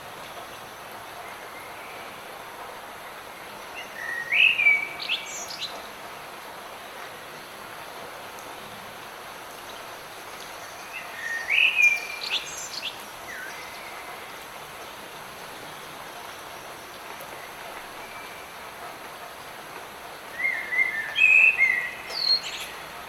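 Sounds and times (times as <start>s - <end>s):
light rain falling: 0.0s - 23.0s
songbirds chirping: 9.0s - 18.8s.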